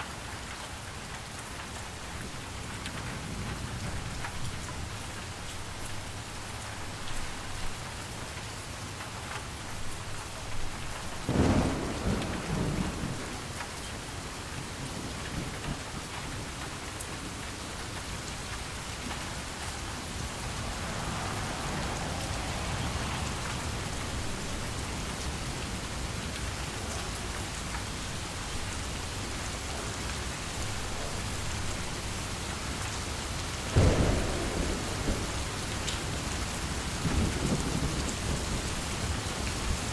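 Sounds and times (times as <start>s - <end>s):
heavy rain: 0.0s - 39.9s
thunder rumbling: 10.7s - 17.4s, 18.1s - 29.4s, 33.6s - 39.8s.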